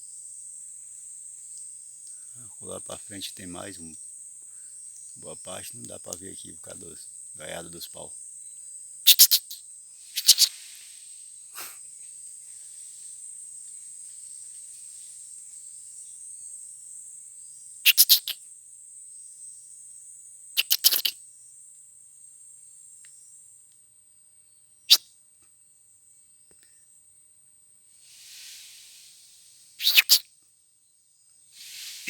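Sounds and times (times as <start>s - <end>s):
high-pitched insect chirring: 5.0s - 11.8s, 17.8s - 18.5s, 20.5s - 21.2s, 28.1s - 30.3s.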